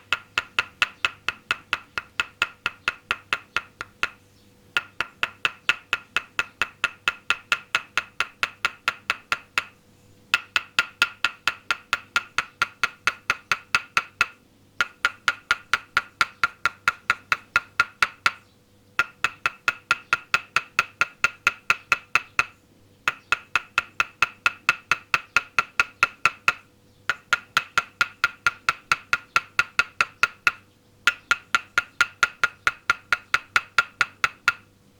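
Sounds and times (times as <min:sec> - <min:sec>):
wooden mallet tapping wooden peg: 0:00.0 - 0:04.2, 0:04.8 - 0:18.4, 0:19.0 - 0:34.7.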